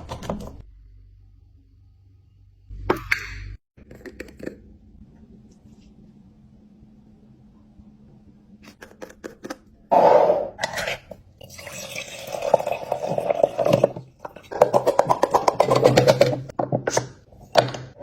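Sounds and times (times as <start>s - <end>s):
kitchen containers clattering: 12.5s - 18.0s.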